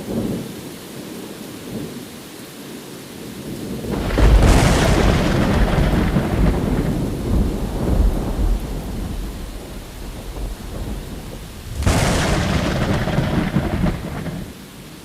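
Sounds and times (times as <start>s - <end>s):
thunder rumbling: 3.8s - 15.0s
sharp thunder crack: 3.9s - 14.9s.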